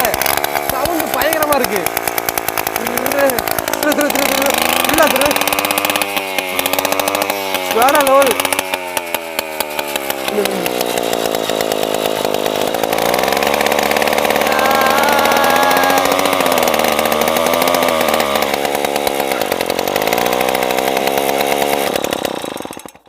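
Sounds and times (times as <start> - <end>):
moped engine revving: 0.0 - 23.0.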